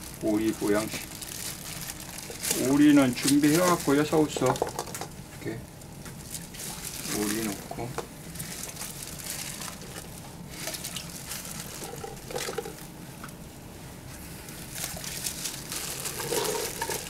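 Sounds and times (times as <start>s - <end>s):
water pouring into cooking pot: 10.7s - 12.8s.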